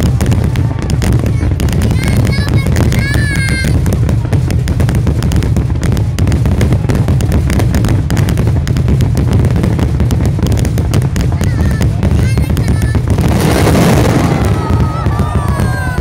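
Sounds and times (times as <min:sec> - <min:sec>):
fireworks popping and crackling: 0:00.0 - 0:16.0
low booming: 0:00.0 - 0:16.0.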